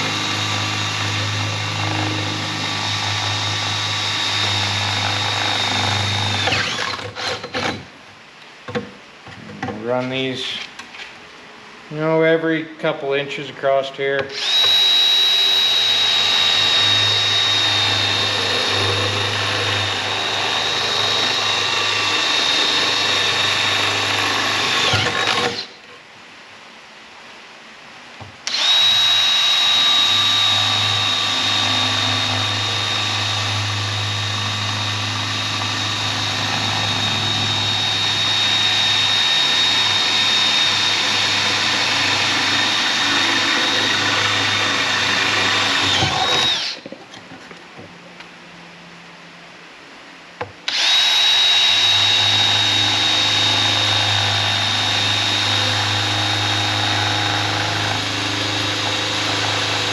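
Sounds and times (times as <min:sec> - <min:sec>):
power drill whining through metal: 0:00.0 - 0:07.9, 0:14.3 - 0:25.8, 0:28.4 - 0:46.9, 0:50.6 - 0:59.9.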